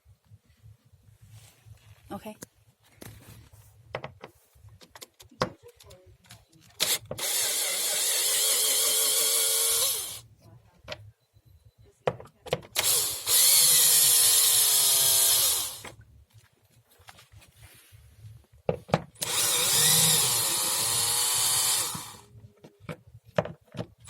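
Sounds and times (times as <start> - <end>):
power drill motor whine: 6.8 - 10.2, 12.8 - 16.0, 19.2 - 22.3.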